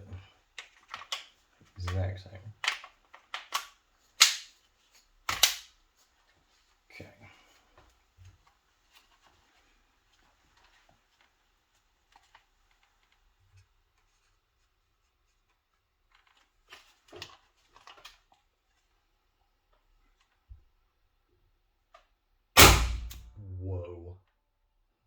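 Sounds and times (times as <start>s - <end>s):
clicks and rattles of handling: 0.1s - 6.6s, 7.8s - 14.2s, 15.4s - 18.9s
loud sharp clicks: 22.6s - 23.3s.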